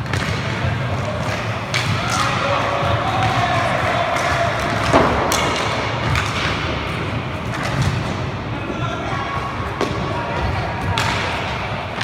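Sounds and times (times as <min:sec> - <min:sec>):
sticks knocking puck: 0:04.1 - 0:06.7.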